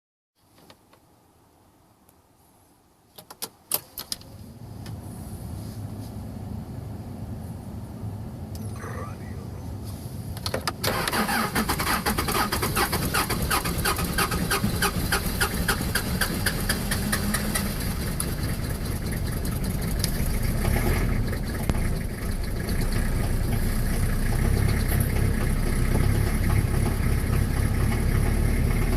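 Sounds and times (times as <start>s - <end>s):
diesel engine idling: 4.5s - 28.9s
diesel engine clattering rough: 10.2s - 28.9s.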